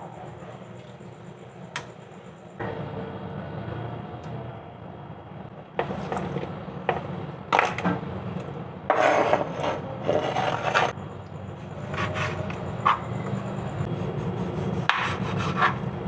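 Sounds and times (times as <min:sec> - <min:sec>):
kitchen utensil scraping: 0:08.9 - 0:11.0, 0:11.8 - 0:13.4, 0:14.3 - 0:16.0.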